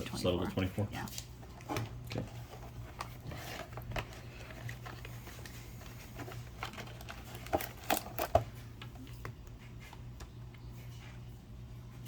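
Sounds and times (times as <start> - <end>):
clicks and taps of foil packs: 1.2 - 9.4.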